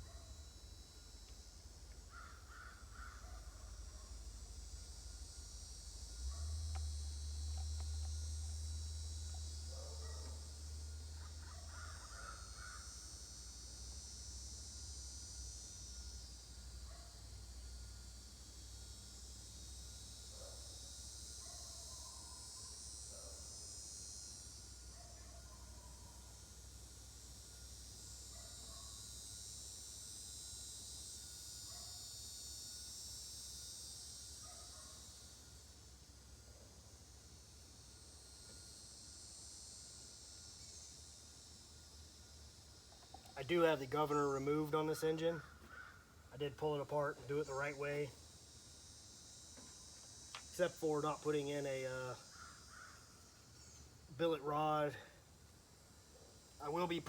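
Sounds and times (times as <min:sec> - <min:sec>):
faint low hum: 0:00.0 - 0:23.7
high insect chorus: 0:00.0 - 0:57.0.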